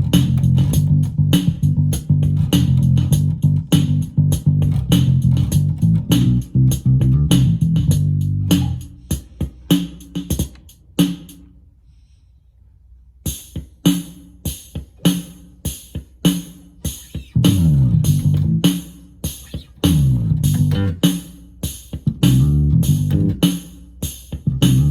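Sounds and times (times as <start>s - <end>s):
electric bass guitar: 0.0s - 9.0s, 17.3s - 18.7s, 19.6s - 21.0s, 22.1s - 23.4s, 24.5s - 24.9s
drum machine pattern: 0.0s - 11.4s, 13.3s - 24.9s.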